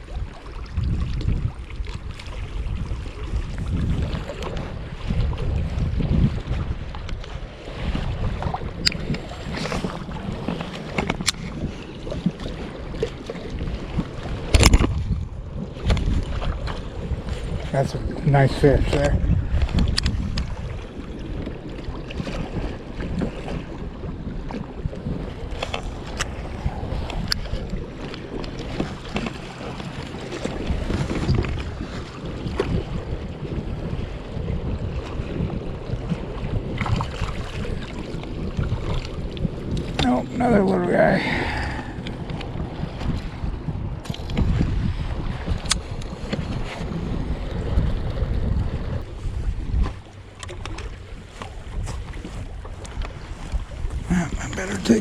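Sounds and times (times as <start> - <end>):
water lapping against hull: 0.0 - 55.0
wind rumbling on microphone: 0.0 - 55.0
gear clicking on kayak hull: 8.4 - 17.6, 19.0 - 20.6, 24.5 - 31.9, 41.7 - 43.3, 45.5 - 46.9, 49.7 - 53.6.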